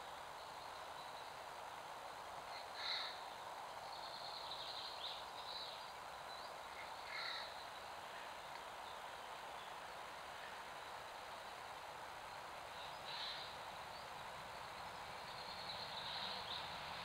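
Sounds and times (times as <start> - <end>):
steady hiss: 0.0 - 17.0
bird calls: 2.5 - 9.0, 12.7 - 14.2.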